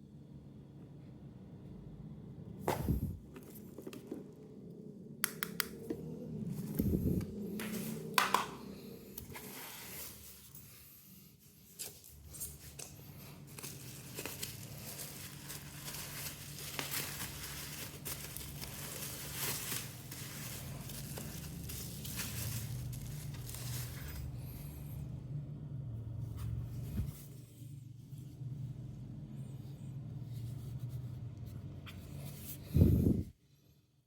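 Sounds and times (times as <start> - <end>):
packaging crinkling and rustling: 11.7 - 24.4.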